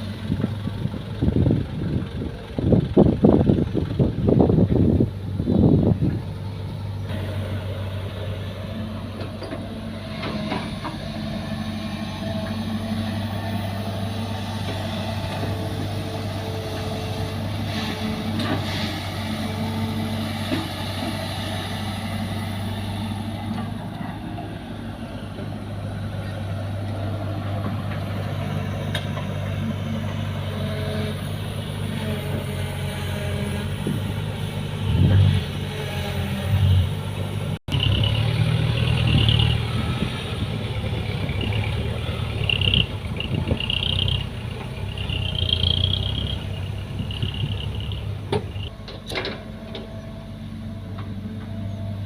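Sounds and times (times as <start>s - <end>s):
excavator diesel engine running: 0.0s - 52.0s
loud rumble: 37.6s - 48.7s.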